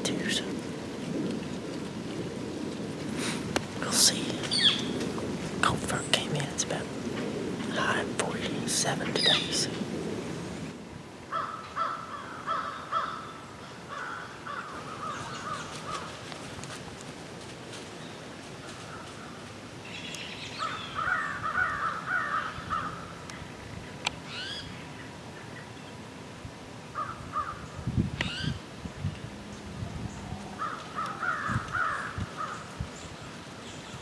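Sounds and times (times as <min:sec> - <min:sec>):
birds calling: 0:03.2 - 0:05.2, 0:09.0 - 0:10.0, 0:11.3 - 0:16.5, 0:18.0 - 0:26.0, 0:27.0 - 0:34.0.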